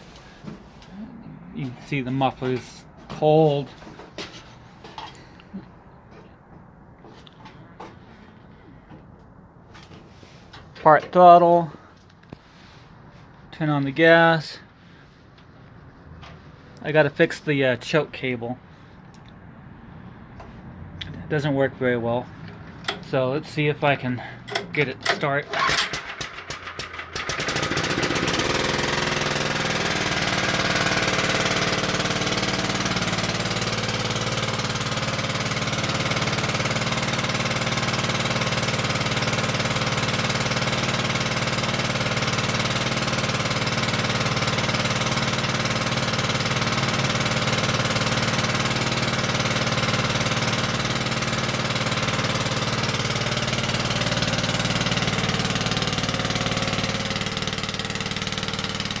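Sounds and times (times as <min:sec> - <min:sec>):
garden tractor engine running: 0:20.2 - 0:59.0.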